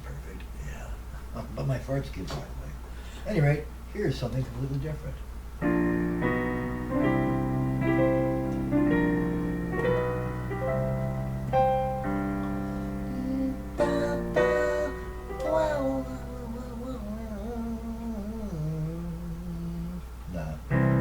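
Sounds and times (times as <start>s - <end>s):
blues piano chords: 5.6s - 19.9s, 20.6s - 21.0s
person humming: 13.0s - 20.1s.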